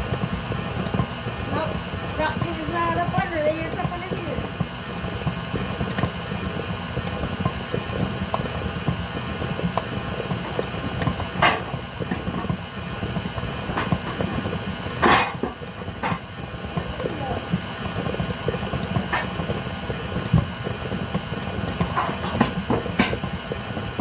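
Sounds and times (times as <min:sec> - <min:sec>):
electric stand mixer running: 0:00.0 - 0:24.0
pans knocking and clattering: 0:10.3 - 0:12.6, 0:13.7 - 0:16.3, 0:19.0 - 0:19.6, 0:21.8 - 0:23.4.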